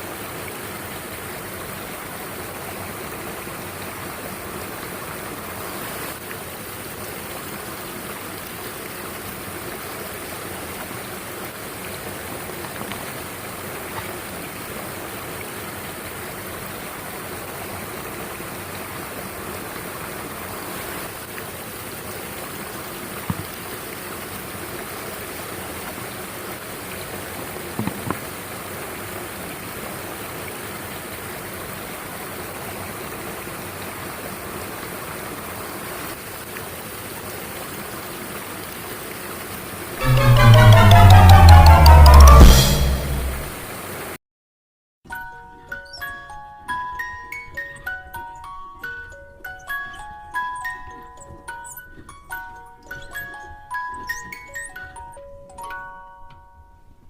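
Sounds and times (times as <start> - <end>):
stream rushing over rocks: 0.0 - 42.2.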